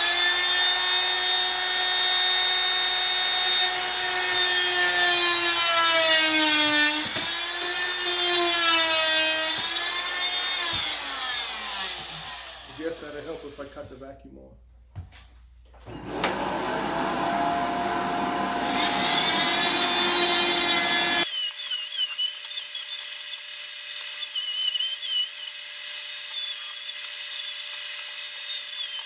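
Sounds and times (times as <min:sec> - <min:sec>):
vacuum cleaner motor running: 0:15.8 - 0:21.2.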